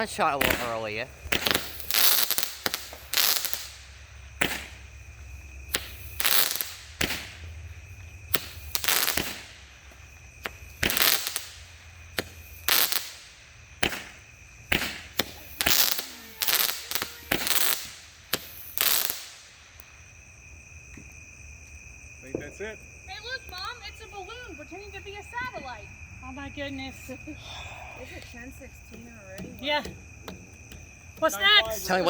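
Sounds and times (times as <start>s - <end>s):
fireworks cake bangs: 0.0s - 20.2s, 22.0s - 25.6s.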